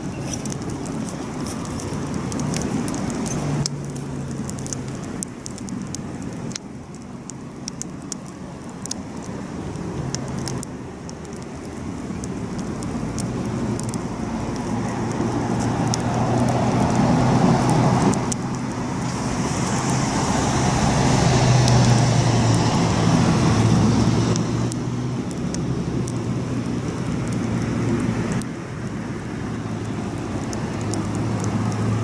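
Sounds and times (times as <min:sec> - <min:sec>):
campfire crackling and popping: 0:00.0 - 0:32.0
low engine-like hum: 0:12.0 - 0:32.0.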